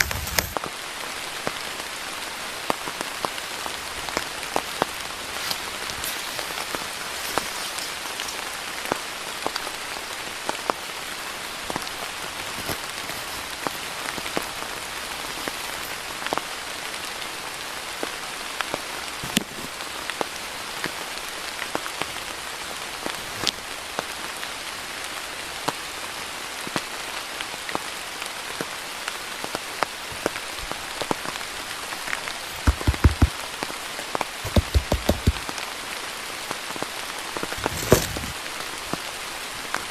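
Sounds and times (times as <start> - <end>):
steady rain falling: 0.0 - 39.9
drops ticking on surfaces: 32.6 - 33.4, 34.4 - 35.5
dull thumps: 32.6 - 33.4, 34.4 - 35.4.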